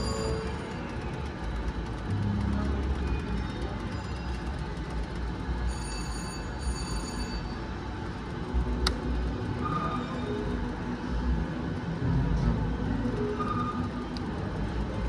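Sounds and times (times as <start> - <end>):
electronic slot machine tones: 0.0 - 7.8
casino machines and crowd din: 0.0 - 15.0.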